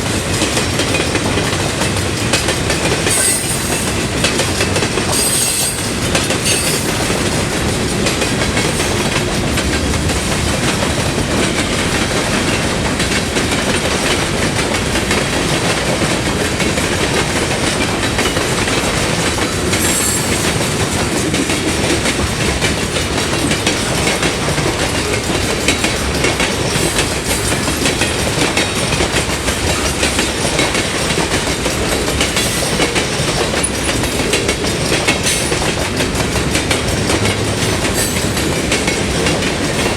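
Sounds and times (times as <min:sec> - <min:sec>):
train wheels clacking over rails: 0:00.0 - 0:39.9
high-pitched wheel squeals: 0:05.1 - 0:06.9.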